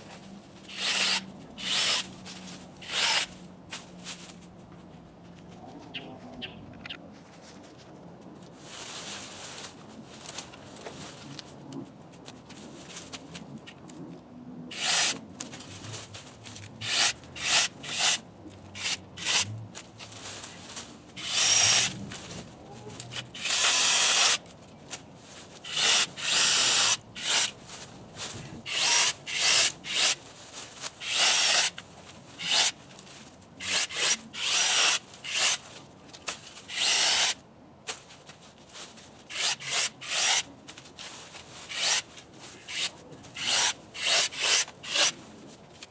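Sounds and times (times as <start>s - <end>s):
electric chainsaw cutting branches: 0.7s - 2.1s, 2.8s - 3.4s, 14.7s - 15.2s, 16.8s - 18.2s, 18.8s - 19.5s, 21.2s - 22.0s, 23.1s - 24.4s, 25.7s - 27.6s, 28.7s - 30.2s, 31.0s - 31.8s, 32.4s - 32.8s, 33.6s - 35.6s, 36.7s - 37.4s, 39.3s - 40.5s, 41.7s - 42.1s, 42.7s - 45.2s.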